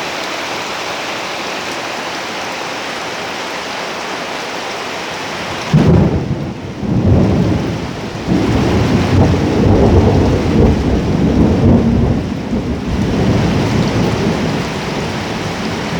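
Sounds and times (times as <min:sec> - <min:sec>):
steady rain: 0:00.0 - 0:15.9
thunder rumbling: 0:05.7 - 0:15.9.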